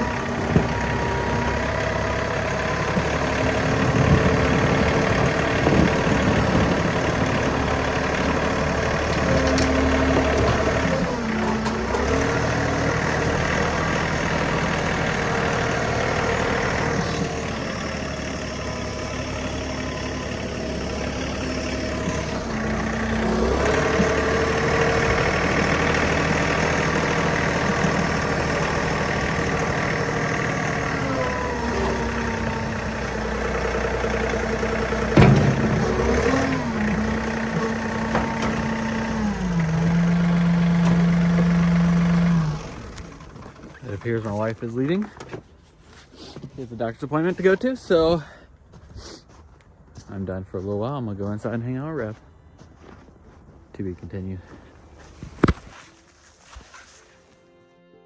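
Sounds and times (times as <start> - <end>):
tractor diesel engine running: 0.0 - 56.6
sharp clunk: 35.2 - 36.2.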